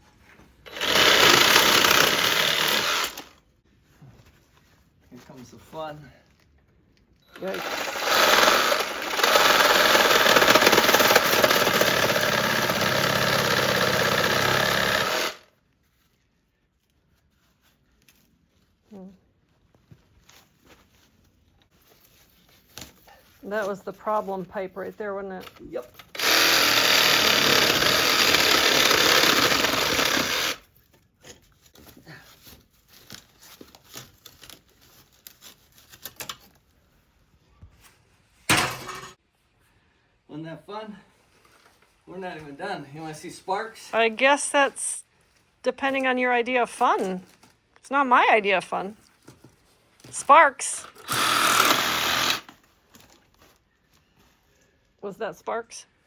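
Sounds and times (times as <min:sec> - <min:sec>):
power tool running: 0:00.7 - 0:03.3, 0:07.4 - 0:15.4, 0:26.1 - 0:30.6, 0:50.8 - 0:52.6.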